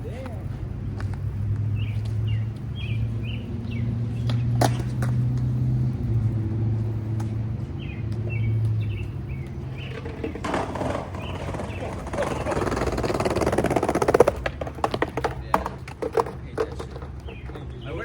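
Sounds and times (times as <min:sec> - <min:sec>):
birds chirping: 0:00.0 - 0:05.2, 0:06.1 - 0:18.0.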